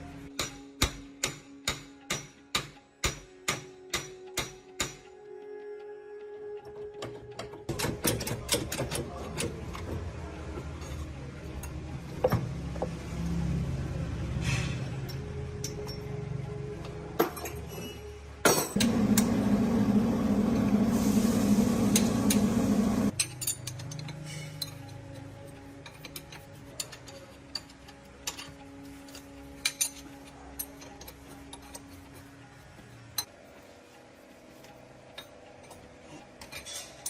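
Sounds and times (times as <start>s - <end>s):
metallic clinks of tools: 15.0s - 16.2s, 23.1s - 31.9s
power tool running: 18.8s - 23.1s.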